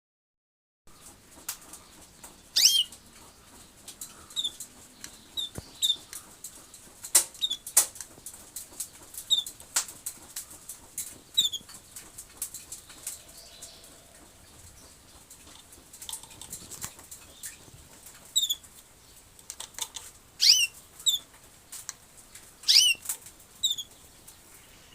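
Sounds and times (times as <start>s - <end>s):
small birds chirping: 0.9s - 24.9s
sharp taps and clicks: 1.0s - 13.4s
bird sweeping call: 2.6s - 2.9s, 13.1s - 14.5s.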